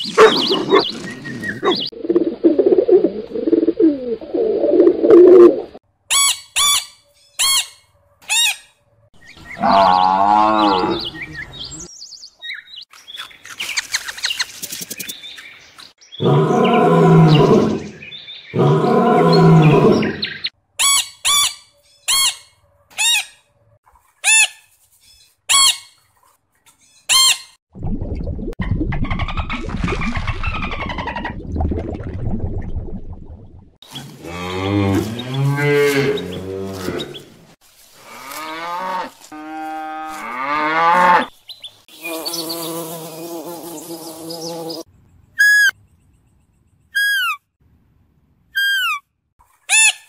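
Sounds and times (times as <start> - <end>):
short high animal chirps: 45.4 - 45.8, 46.9 - 47.4, 48.6 - 49.0.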